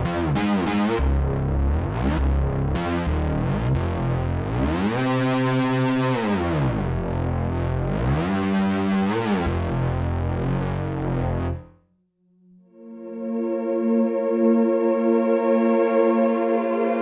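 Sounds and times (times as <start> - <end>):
low synth bass notes: 0.0 - 11.8
synthesizer chord gliding in pitch: 12.6 - 17.0.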